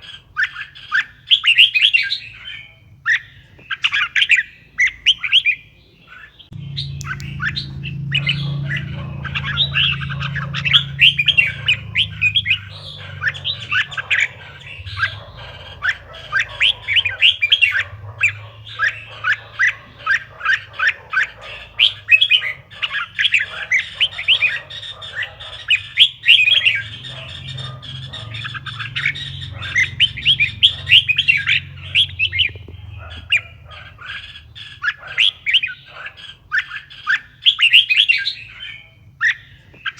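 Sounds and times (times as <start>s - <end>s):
birds chirping: 0.0s - 39.9s
low steady hum: 6.5s - 20.6s.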